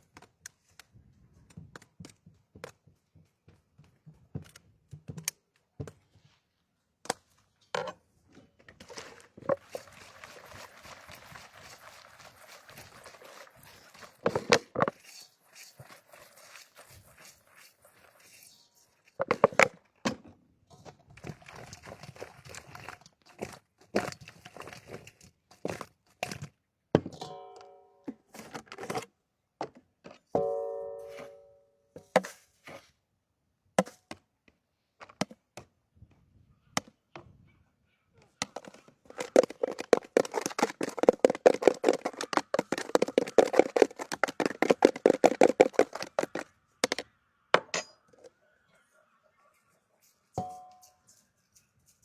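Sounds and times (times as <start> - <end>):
dishes and utensils clinking: 27.1 - 27.9, 50.3 - 52.0.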